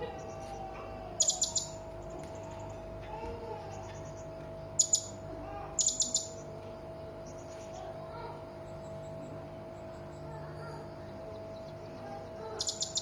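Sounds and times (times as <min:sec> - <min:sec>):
soft bird calls: 0:00.0 - 0:13.0
parrot high chirps: 0:01.2 - 0:01.8, 0:04.8 - 0:05.2, 0:05.8 - 0:06.4, 0:12.4 - 0:13.0.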